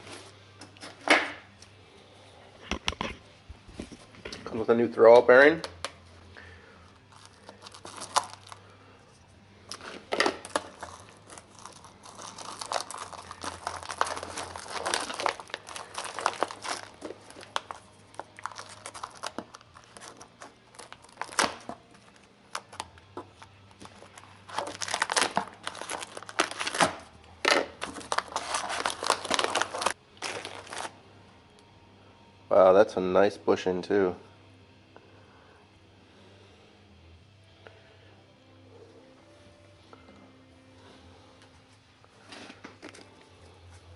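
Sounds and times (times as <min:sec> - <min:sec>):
packaging crinkling and tearing: 0:07.0 - 0:08.7, 0:09.7 - 0:30.9.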